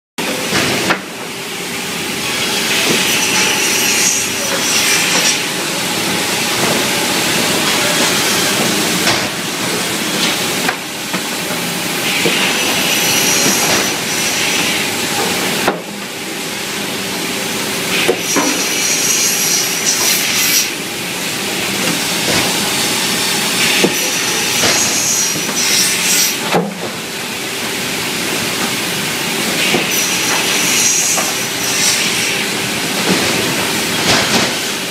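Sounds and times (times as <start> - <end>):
saw machine humming and hissing: 0.2 - 34.9
saw blade cutting wood: 2.2 - 5.6, 12.0 - 15.4, 18.0 - 20.8, 23.6 - 26.4, 29.6 - 32.5.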